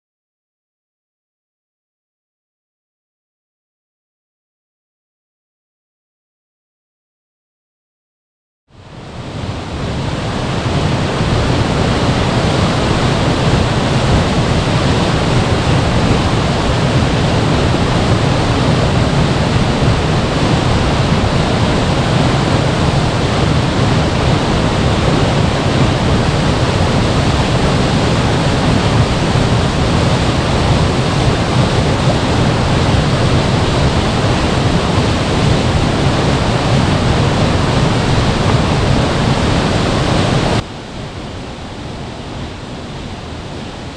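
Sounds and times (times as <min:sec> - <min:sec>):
waterfall rushing: 0:08.8 - 0:43.9.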